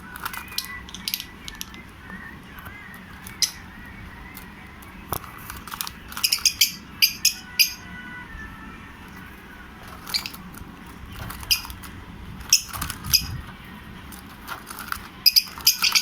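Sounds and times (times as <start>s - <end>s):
lovebirds chirping shrilly: 3.1s - 4.3s, 5.6s - 7.9s, 9.9s - 13.5s, 15.2s - 16.0s.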